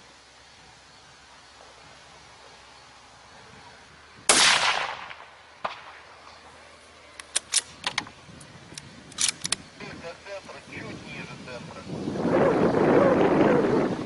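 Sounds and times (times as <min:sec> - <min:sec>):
rifle shot: 0:04.3 - 0:06.1
quick clicks: 0:08.7 - 0:09.6.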